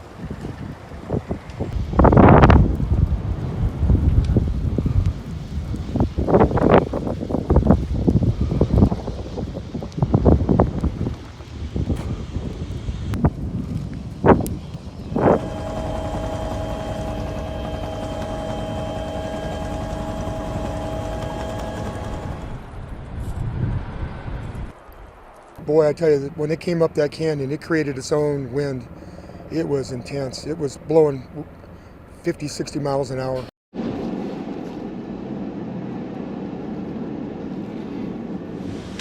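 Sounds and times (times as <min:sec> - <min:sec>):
wind buffeting microphone: 0:00.0 - 0:32.1
engine drone with whining tones: 0:14.1 - 0:24.6, 0:33.8 - 0:39.0.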